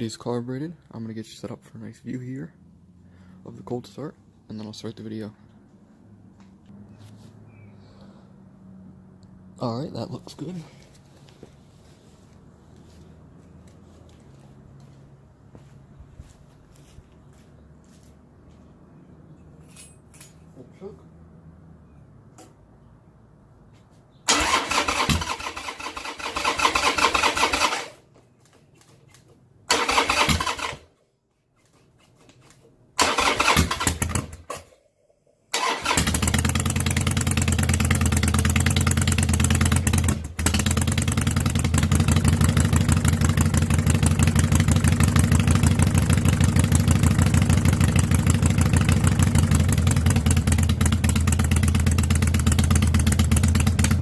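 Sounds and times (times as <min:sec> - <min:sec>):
motorcycle engine start attempts: 0:24.2 - 0:31.0, 0:32.4 - 0:34.8, 0:35.5 - 0:54.0
motorcycle engine idling loudly: 0:36.1 - 0:54.0.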